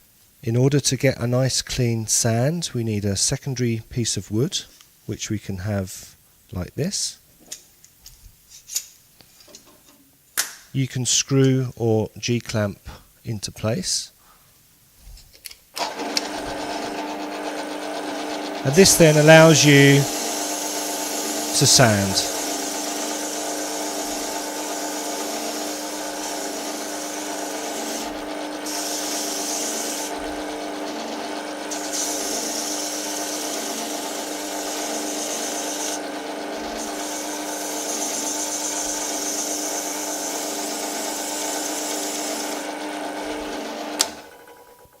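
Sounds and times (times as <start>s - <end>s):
drill motor hum: 15.8s - 45.0s
wood rubbing on sanding drum: 23.6s - 36.0s
drill switch click: 44.0s - 44.2s.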